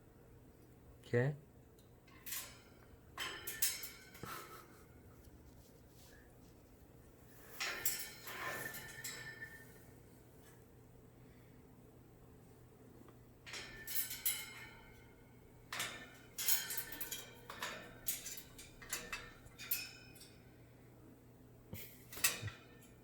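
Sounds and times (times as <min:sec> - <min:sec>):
objects clattering and rustling: 0:07.2 - 0:10.6.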